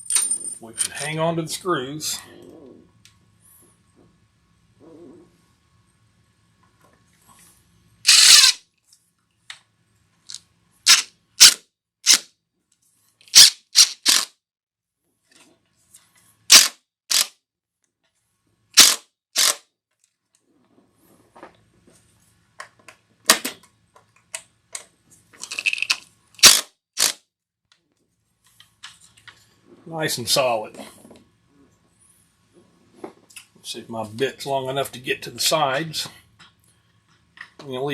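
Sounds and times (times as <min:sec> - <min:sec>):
scraping burst: 0:08.1 - 0:08.6
tools clicking and knocking: 0:08.1 - 0:08.6, 0:10.9 - 0:12.2, 0:13.2 - 0:14.3, 0:22.6 - 0:27.1.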